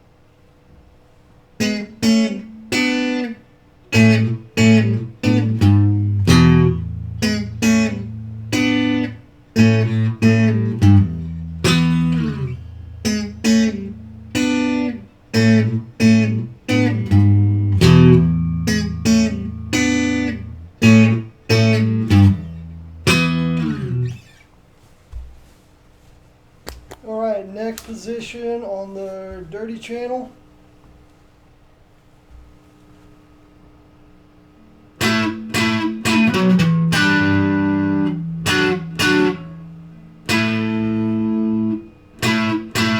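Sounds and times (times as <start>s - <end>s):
clean electric guitar chords and notes: 1.6s - 24.3s, 35.0s - 42.9s.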